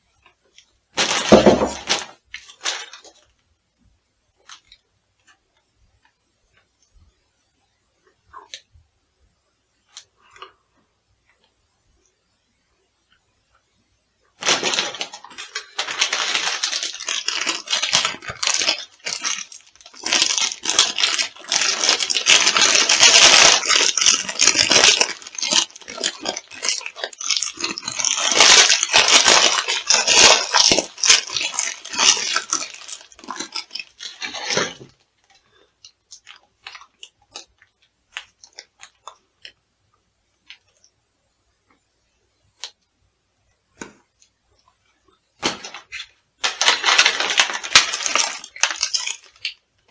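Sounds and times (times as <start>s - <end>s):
crunchy food crushed underfoot: 1.0s - 3.2s, 14.4s - 35.0s, 45.4s - 49.6s
small clicks and crackles: 14.4s - 39.6s, 43.8s - 49.9s.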